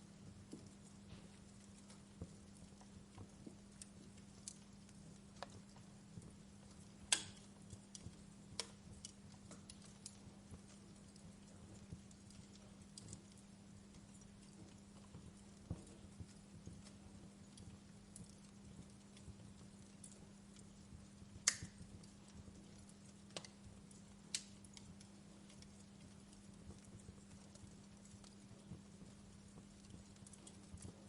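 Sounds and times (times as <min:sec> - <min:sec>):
faint low hum: 0:00.0 - 0:31.0
wood fire crackling: 0:00.0 - 0:31.0.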